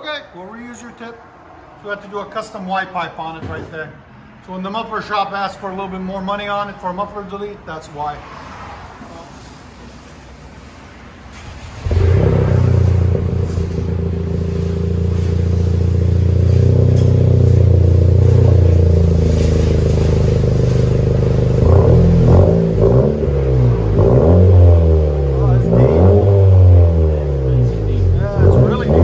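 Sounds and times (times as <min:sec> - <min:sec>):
car engine starting: 0:08.3 - 0:29.0
car engine idling: 0:09.8 - 0:29.0
engine revving blips: 0:11.4 - 0:29.0.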